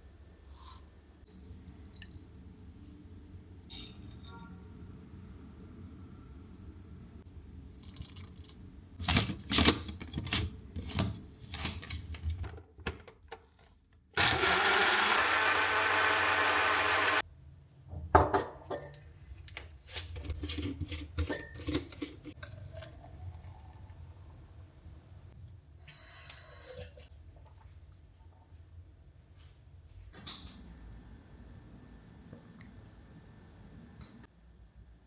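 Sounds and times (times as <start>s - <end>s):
electric blender running: 14.2s - 17.2s
kitchen knocks and clinks: 18.0s - 19.1s.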